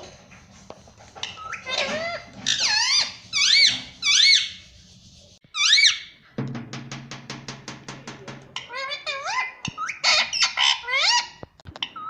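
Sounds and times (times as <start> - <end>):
parrot squeaky calls: 1.2 - 4.6, 5.5 - 6.2, 8.6 - 12.0.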